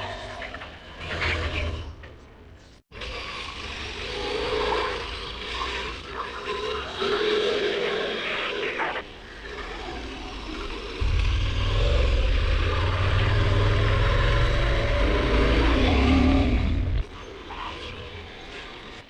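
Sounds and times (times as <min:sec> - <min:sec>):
motorcycle engine rumbling: 0:11.0 - 0:15.6.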